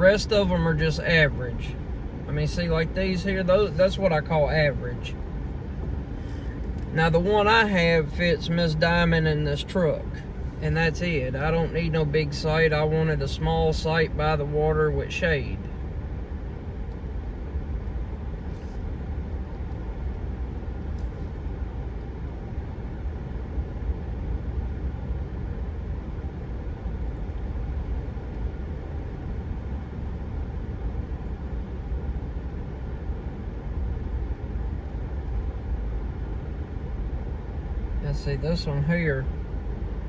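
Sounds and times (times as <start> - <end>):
pickup truck driving slowly: 0.0 - 18.5.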